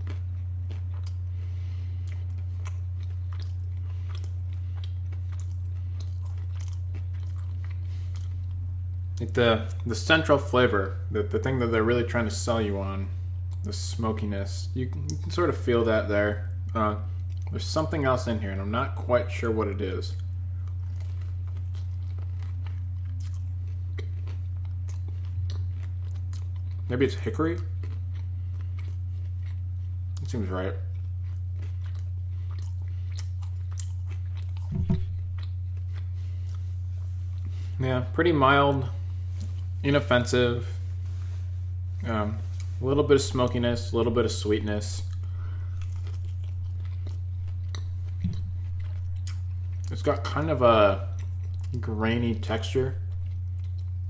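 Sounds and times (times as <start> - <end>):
person chewing crunchy food: 0.0 - 10.4, 16.4 - 17.7, 20.1 - 54.0
low electrical hum: 0.0 - 54.0
wet mouth clicks: 47.8 - 49.4.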